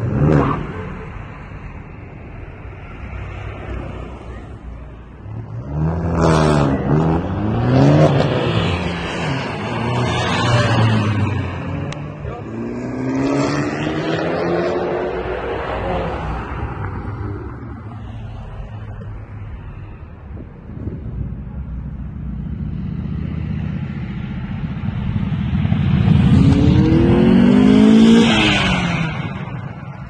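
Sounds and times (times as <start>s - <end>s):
car engine revving: 5.1s - 19.3s, 20.7s - 30.0s.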